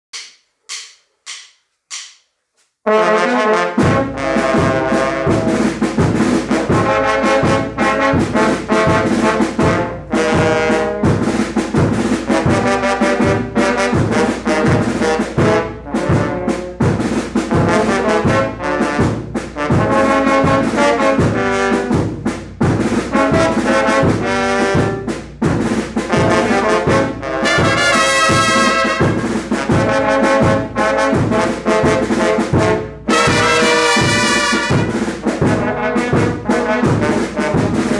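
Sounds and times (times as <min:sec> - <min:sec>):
brass band playing: 0:02.8 - 0:37.9
driving bass beat: 0:15.5 - 0:36.4.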